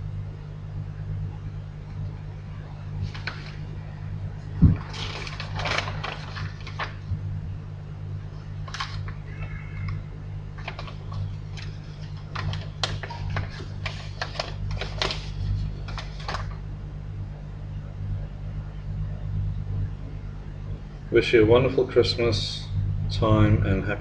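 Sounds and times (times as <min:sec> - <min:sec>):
steady low hum: 0:00.0 - 0:24.0
paper parcel clicks and rustles: 0:03.0 - 0:03.7, 0:04.6 - 0:07.1, 0:08.6 - 0:10.0, 0:10.6 - 0:16.6.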